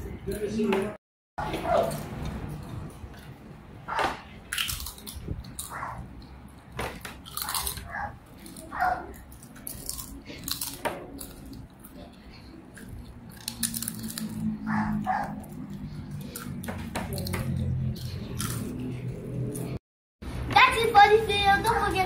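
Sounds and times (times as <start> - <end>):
children crunching fried snacks: 1.4 - 3.5, 4.4 - 19.8.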